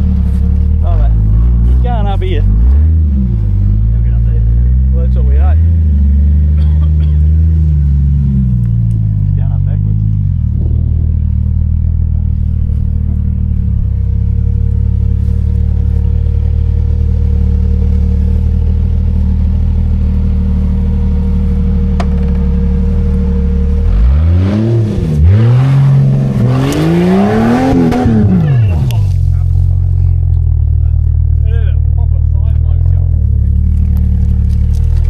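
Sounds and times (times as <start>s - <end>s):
engine idling at low revs: 0.0s - 24.0s, 25.9s - 35.0s
engine revving hard: 23.6s - 29.5s.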